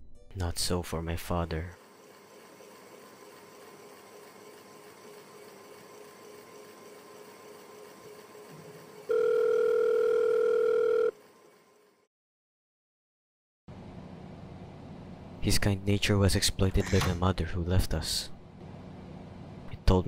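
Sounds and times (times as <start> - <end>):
faint steady hum: 9.0 - 12.0.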